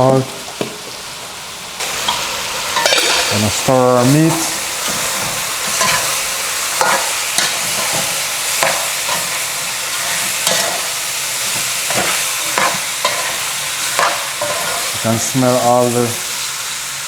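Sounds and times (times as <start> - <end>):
chicken frying in hot oil: 0.0 - 17.0
utensil scraping pot: 4.1 - 15.1.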